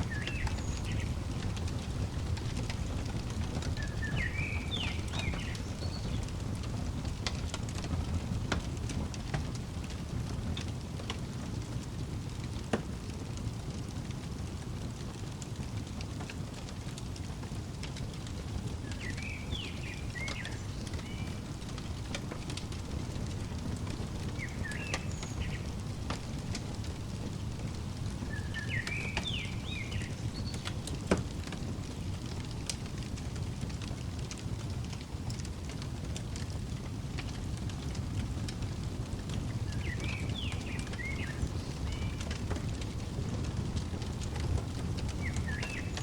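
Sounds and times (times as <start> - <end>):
songbird chirping: 0.0 - 7.5, 18.2 - 31.1, 39.3 - 46.0
wood fire crackling: 0.0 - 46.0.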